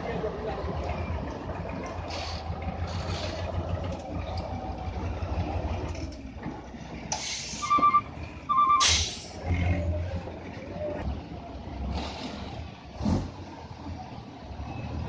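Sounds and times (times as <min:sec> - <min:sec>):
truck engine running: 0:00.0 - 0:14.7
air brake hisses: 0:07.1 - 0:07.8, 0:08.8 - 0:09.4
reversing beeps: 0:07.7 - 0:08.8.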